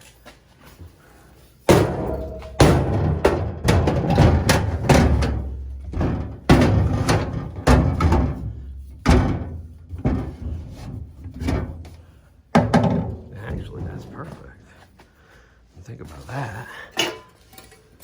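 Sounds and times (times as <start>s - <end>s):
knocks and thuds of boat sections: 1.7s - 14.5s.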